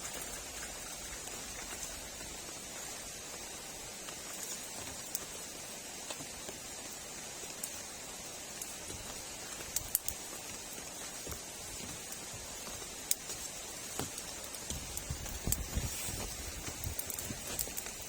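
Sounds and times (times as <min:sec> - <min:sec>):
steady rain hiss: 0:00.0 - 0:18.0
sharp drip ticks: 0:08.5 - 0:12.3, 0:13.0 - 0:15.7, 0:16.7 - 0:18.0.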